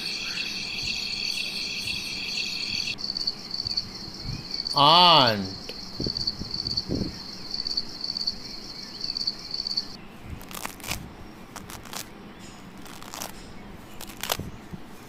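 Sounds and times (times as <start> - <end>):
insect trilling: 0.0 - 10.9.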